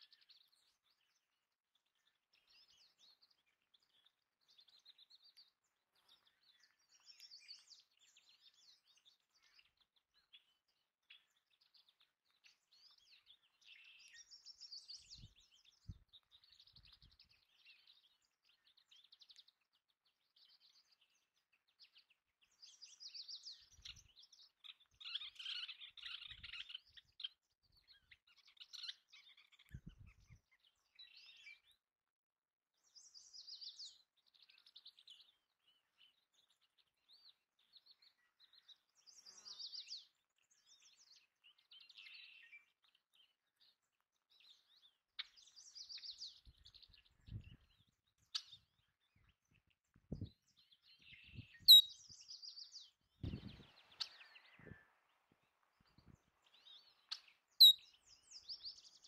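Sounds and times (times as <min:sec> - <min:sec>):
birds chirping and trilling: 0:00.0 - 0:31.8, 0:32.8 - 0:59.0.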